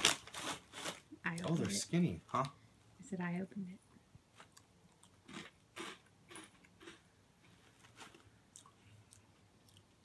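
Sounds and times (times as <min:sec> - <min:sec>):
quiet chewing: 0:04.3 - 0:10.0.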